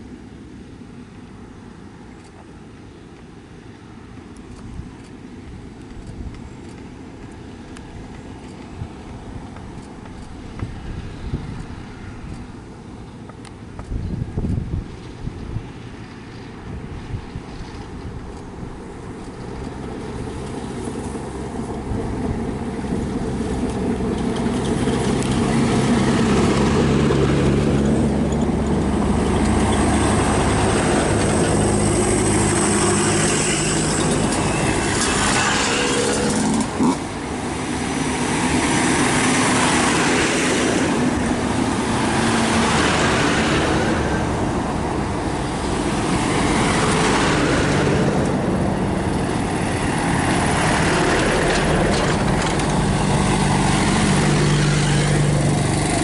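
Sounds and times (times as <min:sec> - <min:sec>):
jeeps and motorcycles driving past: 0:19.2 - 0:56.0.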